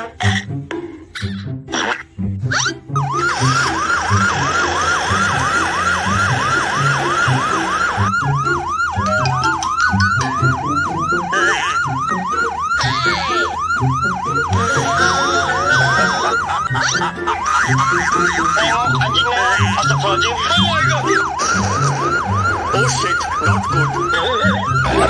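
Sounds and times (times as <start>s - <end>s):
ambulance siren yelp: 2.5s - 25.0s
background music with beat: 8.2s - 12.6s.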